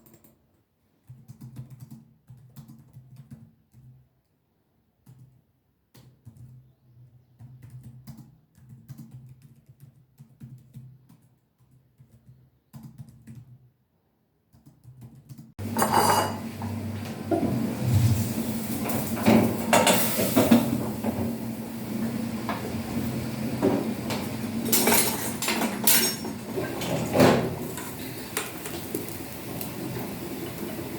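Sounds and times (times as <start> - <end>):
clattering: 23.6 - 28.9.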